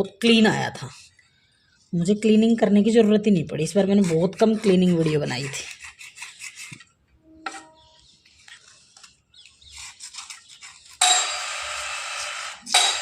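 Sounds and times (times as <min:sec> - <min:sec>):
slate pencil scraping: 0:03.8 - 0:06.9, 0:08.4 - 0:11.1.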